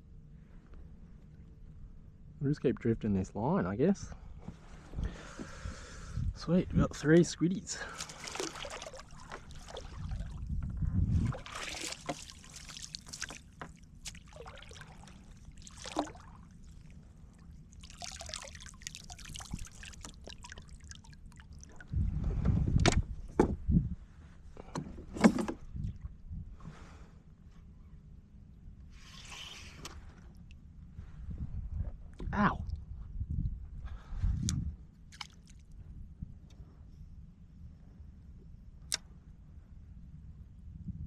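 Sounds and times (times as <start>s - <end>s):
water splashing around kayak: 7.8s - 22.3s
low rumble: 8.0s - 11.8s.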